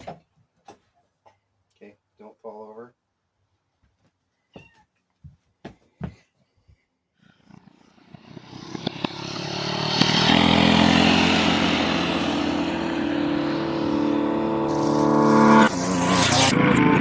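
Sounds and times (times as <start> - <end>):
engine running: 7.5 - 17.0.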